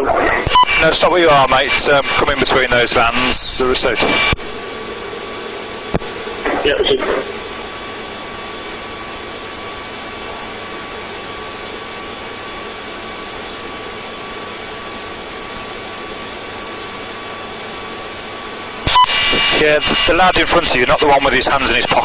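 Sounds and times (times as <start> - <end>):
helicopter intercom hiss: 0.0 - 4.9, 6.1 - 7.8, 18.9 - 22.0.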